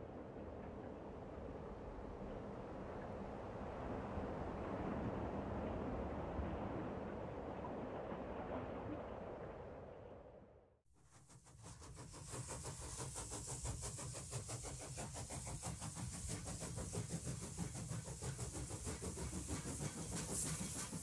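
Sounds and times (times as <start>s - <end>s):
steady hiss: 12.0s - 21.0s
train wheels clattering: 12.3s - 21.0s.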